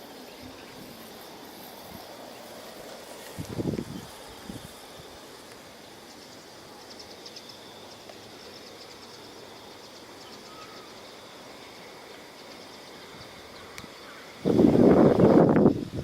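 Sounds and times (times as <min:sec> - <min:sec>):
background hiss: 0:00.0 - 0:16.0
high-pitched insect trilling: 0:00.0 - 0:16.0.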